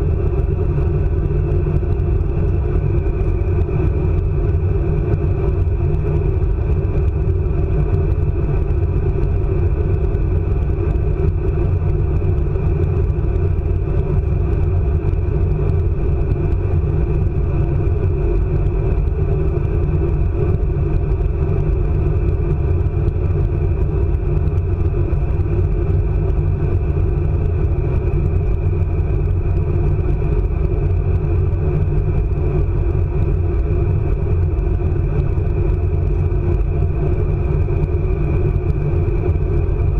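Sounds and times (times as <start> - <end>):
high-speed train rumble: 0.0 - 39.9.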